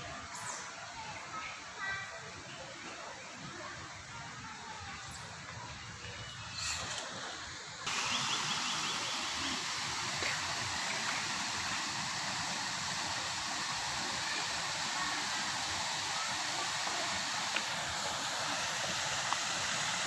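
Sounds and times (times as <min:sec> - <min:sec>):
heavy rain falling: 0:07.9 - 0:20.0.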